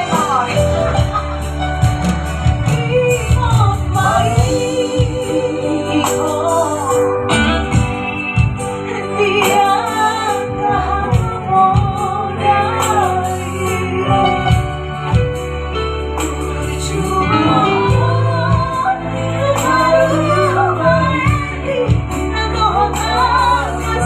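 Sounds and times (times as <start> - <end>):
person singing with vibrato: 0.0 - 15.1, 16.5 - 24.0
backing music with bass: 0.0 - 24.0.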